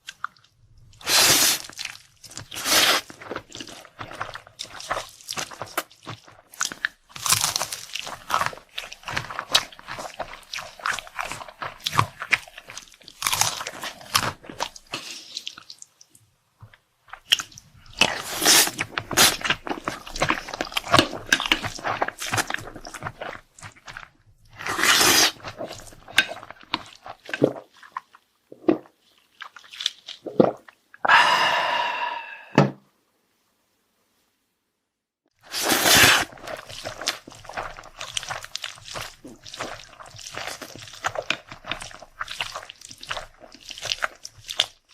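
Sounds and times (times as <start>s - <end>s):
chewing and crunching: 0.0s - 30.7s, 35.4s - 44.9s.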